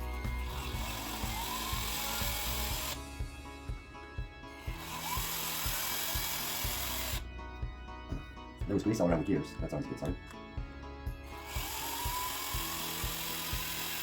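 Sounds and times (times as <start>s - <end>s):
cordless screwdriver running: 0.0s - 3.1s, 4.6s - 7.2s, 11.3s - 14.0s
background music with steady beat: 0.0s - 14.0s.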